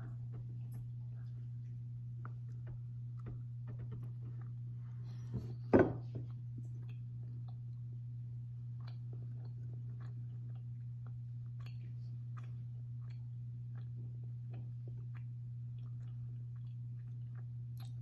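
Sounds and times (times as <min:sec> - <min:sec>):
steady low hum: 0:00.0 - 0:18.0
person chewing: 0:06.3 - 0:18.0.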